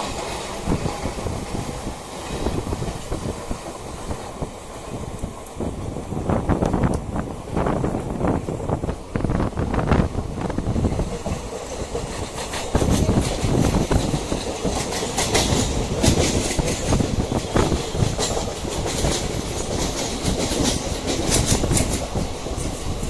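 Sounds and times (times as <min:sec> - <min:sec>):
train rumbling on track: 0:00.0 - 0:23.0
wheels clacking over rail joints: 0:10.6 - 0:23.0.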